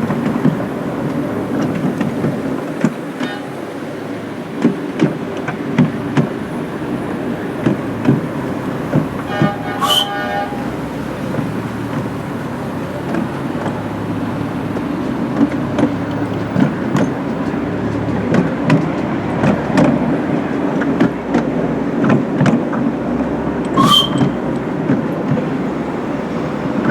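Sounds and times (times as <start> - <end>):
miniature train running on track: 0.0 - 26.9
wheels clicking on rails: 0.0 - 26.9
train whistle toot: 9.2 - 11.4, 23.7 - 24.7.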